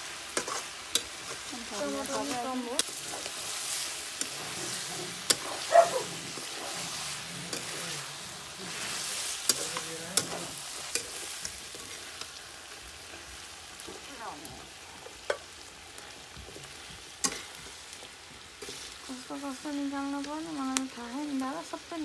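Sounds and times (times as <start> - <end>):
chicken sizzling in a wok: 0.0 - 22.0
spatula stirring: 0.3 - 14.1, 16.1 - 19.2.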